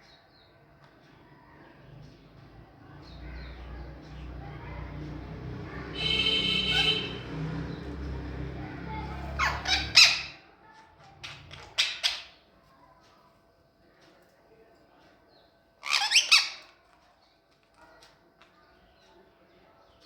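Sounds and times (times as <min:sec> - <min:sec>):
parrot squawking: 0:06.0 - 0:07.2, 0:09.0 - 0:10.4, 0:15.8 - 0:16.7.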